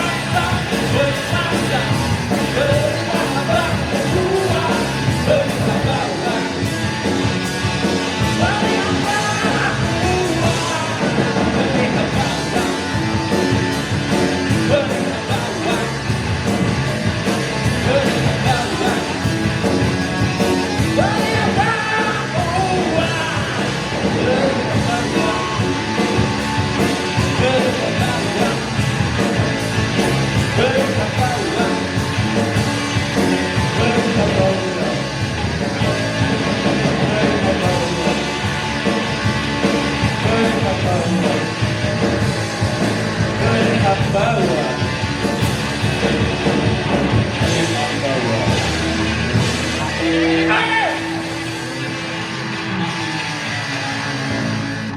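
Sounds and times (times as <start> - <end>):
lead vocal singing: 0.0 - 6.8, 8.2 - 13.0, 17.7 - 19.6, 20.8 - 26.1, 27.1 - 29.5, 30.4 - 31.9, 33.6 - 35.0, 35.8 - 38.4, 40.0 - 41.9, 43.3 - 44.8
live band playing: 0.0 - 54.9.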